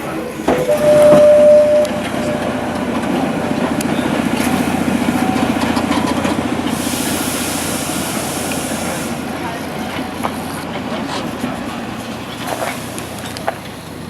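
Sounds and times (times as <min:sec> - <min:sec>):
train running with mechanical rumble: 0:00.0 - 0:14.0
hiss: 0:06.7 - 0:09.4, 0:12.4 - 0:13.6.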